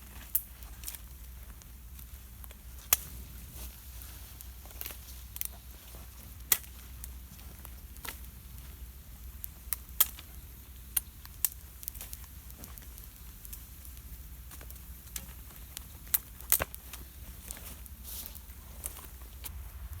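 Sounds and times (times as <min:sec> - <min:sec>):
campfire crackling and popping: 0:00.0 - 0:20.0
steady low rumble: 0:19.2 - 0:20.0.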